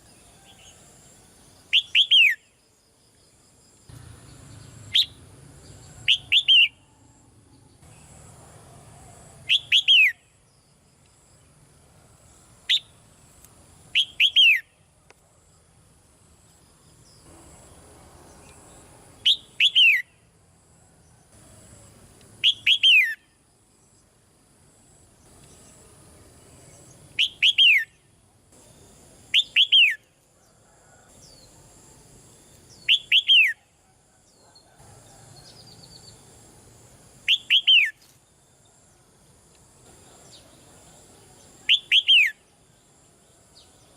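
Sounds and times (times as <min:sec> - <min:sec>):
bird whistling song: 0:01.7 - 0:02.5, 0:04.8 - 0:05.2, 0:06.0 - 0:07.0, 0:09.5 - 0:10.3, 0:12.7 - 0:12.9, 0:13.9 - 0:14.8, 0:19.2 - 0:20.2, 0:22.4 - 0:23.3, 0:27.2 - 0:28.0, 0:29.3 - 0:30.0, 0:32.7 - 0:33.7, 0:37.3 - 0:38.0, 0:41.6 - 0:42.4.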